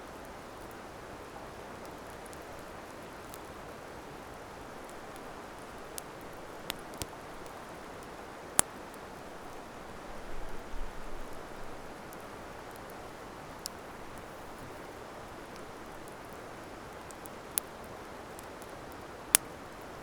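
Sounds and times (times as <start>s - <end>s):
campfire hissing: 1.6s - 20.0s
fire crackling pops: 4.7s - 9.6s, 12.1s - 20.0s.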